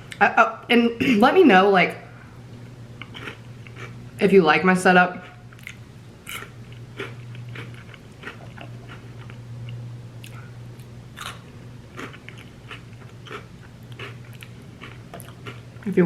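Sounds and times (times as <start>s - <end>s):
steady low hum: 0.0s - 16.0s
crunching and chewing chips: 3.0s - 4.0s, 5.2s - 15.9s.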